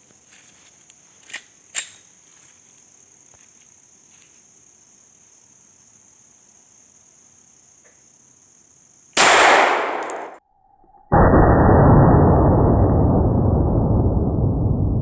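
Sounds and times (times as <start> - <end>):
insects chirring: 0.0 - 11.1
sharp clicks: 9.2 - 10.4.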